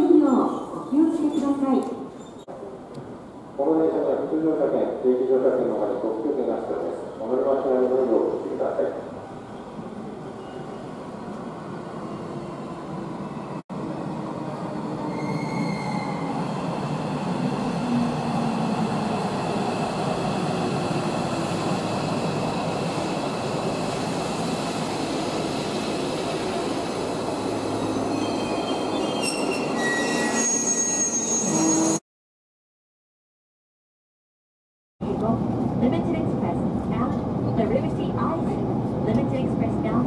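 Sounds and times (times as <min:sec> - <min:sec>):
high squeal of wheels and brakes: 0:00.3 - 0:02.5, 0:09.4 - 0:11.0, 0:15.0 - 0:16.6, 0:27.7 - 0:32.0.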